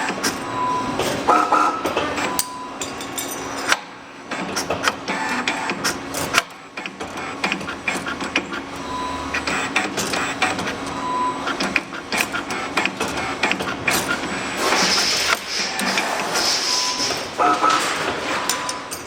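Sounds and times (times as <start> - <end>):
sharp machine clicks and clacks: 3.6 - 8.7, 9.4 - 19.0.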